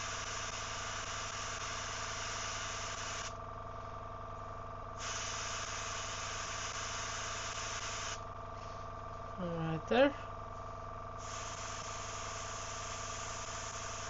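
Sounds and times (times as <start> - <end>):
airbrush spraying hiss: 0.0 - 3.4, 5.0 - 8.2, 11.2 - 14.0
air compressor hum: 0.0 - 14.0.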